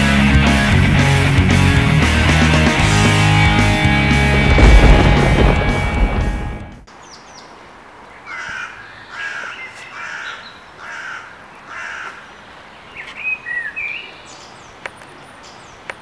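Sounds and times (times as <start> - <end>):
bird calling: 8.2 - 16.0.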